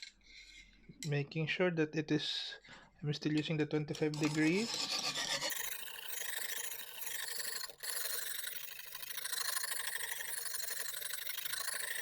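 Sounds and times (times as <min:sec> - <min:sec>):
sharpening stone rasping on knife: 0:04.2 - 0:12.0.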